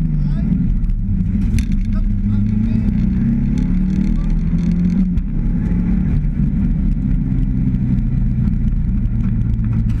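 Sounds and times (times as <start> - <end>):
car engine running hard inside cabin: 0.0 - 10.0.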